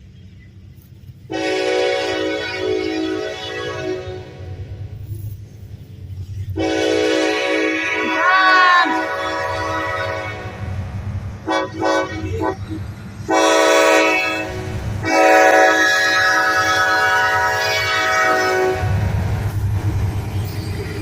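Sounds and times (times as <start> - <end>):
locomotive air horn blasts: 1.3 - 4.8, 6.5 - 10.7, 11.4 - 19.1.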